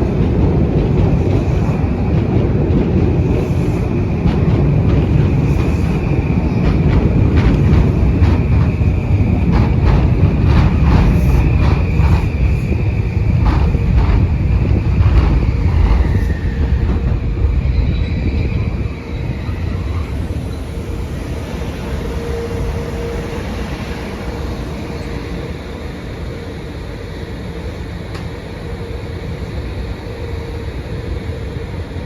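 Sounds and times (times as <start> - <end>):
train rumble: 0.0 - 32.0
train wheels clacking: 0.0 - 32.0.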